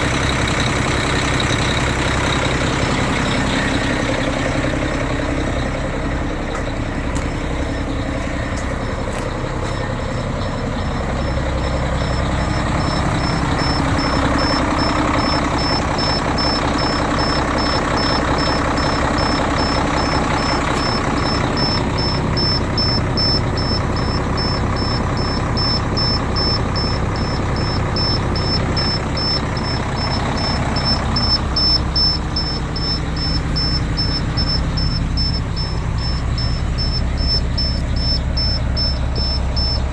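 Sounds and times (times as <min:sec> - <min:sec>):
diesel engine idling: 0:00.0 - 0:39.9
faint high-pitched chirp: 0:19.2 - 0:39.9.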